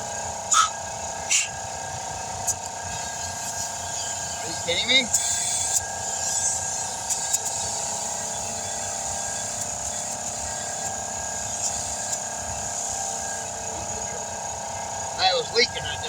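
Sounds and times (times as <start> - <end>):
motor humming: 0.0 - 16.0
high hiss: 0.5 - 1.6.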